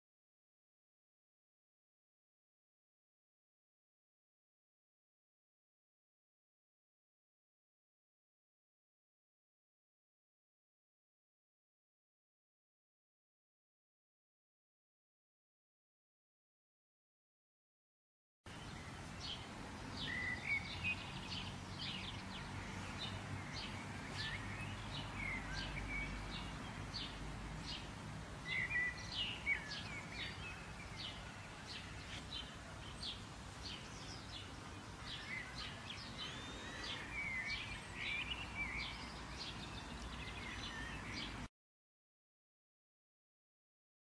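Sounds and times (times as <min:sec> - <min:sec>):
songbirds chirping: 0:18.5 - 0:41.5.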